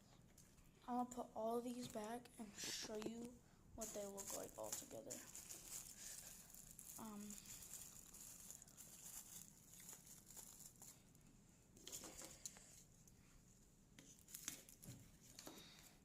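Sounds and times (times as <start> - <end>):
packaging rustling and crinkling: 2.8 - 11.2, 14.0 - 15.5.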